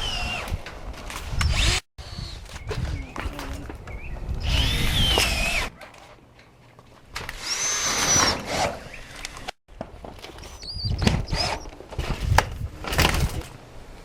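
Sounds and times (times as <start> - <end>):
cordless drill driving screws: 1.3 - 2.4, 4.4 - 5.7, 7.2 - 9.6, 10.4 - 11.7.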